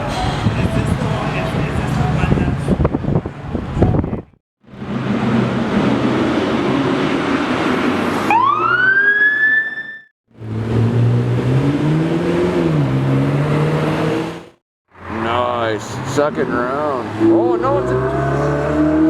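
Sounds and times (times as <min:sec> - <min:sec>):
siren-like rising tone: 0:08.1 - 0:10.1.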